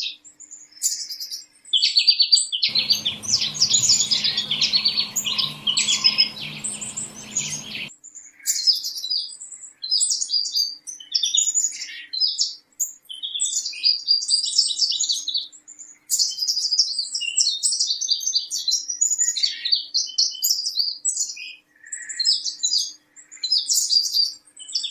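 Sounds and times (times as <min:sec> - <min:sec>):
background hiss: 0:02.7 - 0:07.9
small birds chirping: 0:02.7 - 0:07.9.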